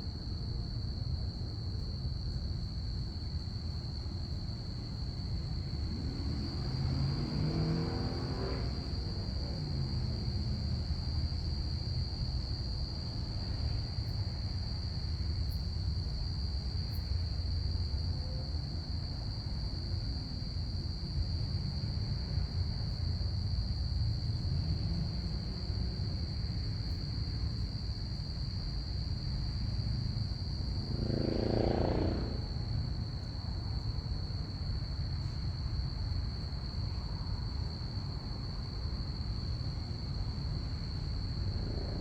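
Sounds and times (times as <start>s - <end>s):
crickets chirping: 0.0s - 42.0s
low steady rumble: 39.6s - 42.0s.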